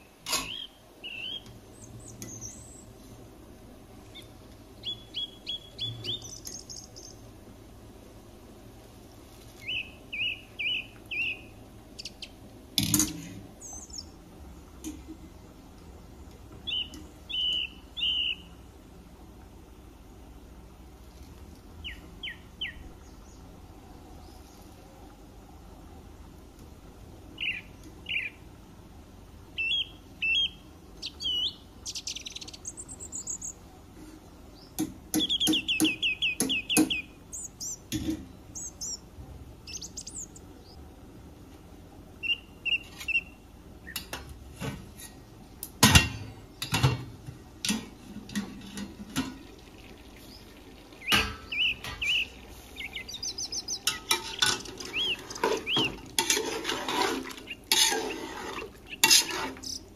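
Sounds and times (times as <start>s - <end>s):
bird trill: 0.0s - 2.9s, 4.1s - 7.2s, 9.6s - 12.4s, 16.6s - 18.5s, 21.8s - 23.5s, 27.4s - 28.4s, 29.6s - 33.6s, 34.6s - 37.9s, 38.5s - 39.0s, 39.7s - 40.8s, 42.2s - 44.1s, 50.2s - 56.0s, 58.8s - 59.9s
birds chirping: 0.0s - 12.7s, 13.4s - 44.2s, 49.4s - 56.4s, 57.3s - 59.9s.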